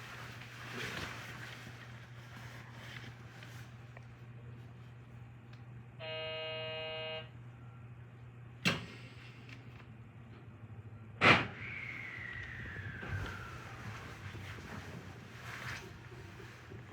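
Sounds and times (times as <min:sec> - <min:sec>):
electric train hum: 0:03.7 - 0:16.9
buzzer tone: 0:06.0 - 0:07.3
train whine falling in pitch: 0:11.4 - 0:14.7.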